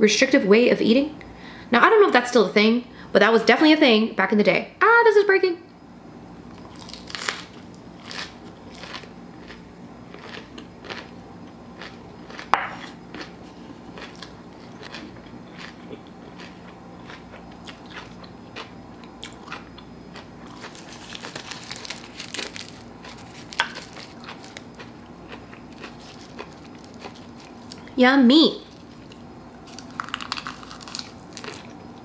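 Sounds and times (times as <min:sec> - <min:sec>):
crunchy chewing: 0:06.5 - 0:28.0, 0:28.6 - 0:32.0
dry seaweed sheet crackling: 0:20.7 - 0:24.8, 0:29.7 - 0:31.6.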